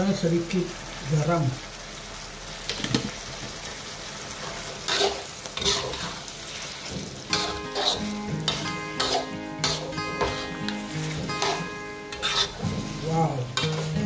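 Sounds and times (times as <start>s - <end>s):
stir-fry sizzling in a wok: 0.0s - 14.0s
spatula scraping a wok: 4.4s - 14.0s
background music: 7.3s - 14.0s.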